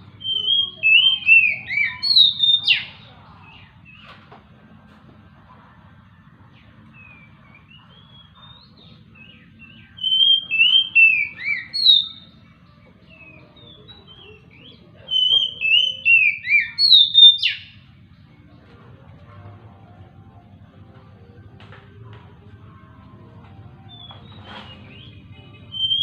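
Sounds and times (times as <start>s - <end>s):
bird singing whistled notes: 0.0s - 4.1s, 6.9s - 17.8s, 23.9s - 26.0s.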